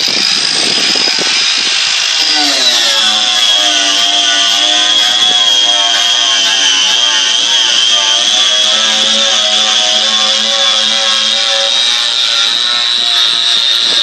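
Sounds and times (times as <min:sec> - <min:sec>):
angle grinder stripping paint: 0:00.0 - 0:14.0.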